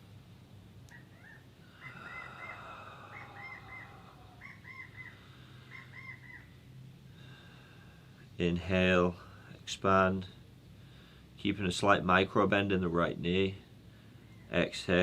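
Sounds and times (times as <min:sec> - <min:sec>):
low steady hum: 0:00.0 - 0:15.0
bird chirping: 0:00.9 - 0:06.7.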